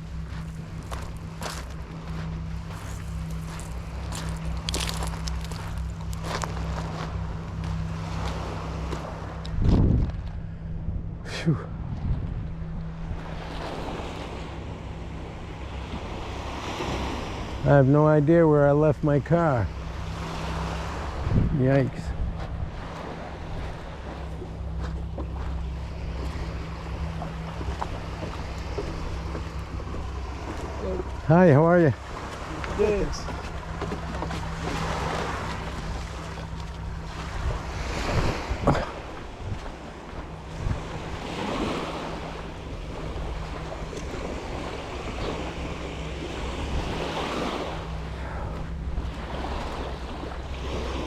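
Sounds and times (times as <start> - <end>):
surf washing on shore: 0.0 - 10.3, 11.3 - 51.0
steady low drone: 0.0 - 51.0
wind on microphone: 9.4 - 14.6, 19.6 - 51.0.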